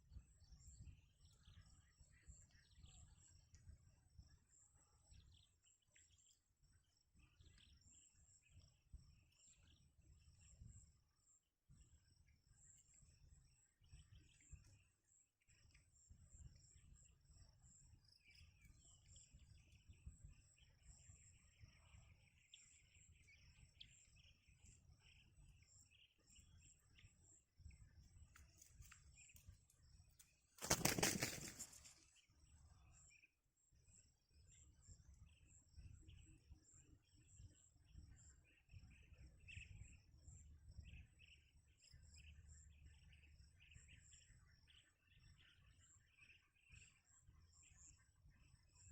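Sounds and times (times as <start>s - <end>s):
bird wings flapping: 30.6s - 32.0s.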